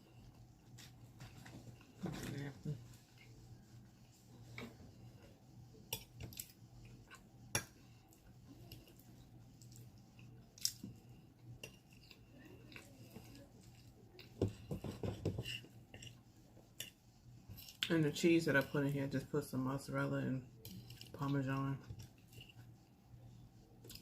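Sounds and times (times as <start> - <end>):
chewing and mouth sounds: 9.6 - 14.4.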